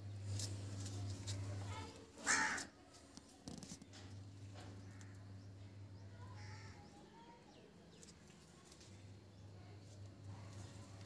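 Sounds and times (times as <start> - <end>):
steady low hum: 0.0 - 11.0
faint bird calls: 4.6 - 7.6.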